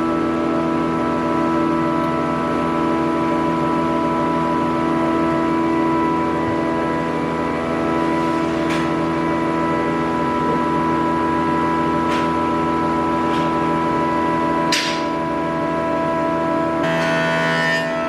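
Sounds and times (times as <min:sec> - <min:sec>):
woodworking machine droning: 0:00.0 - 0:18.0
knocks of wood or tools: 0:14.7 - 0:15.1.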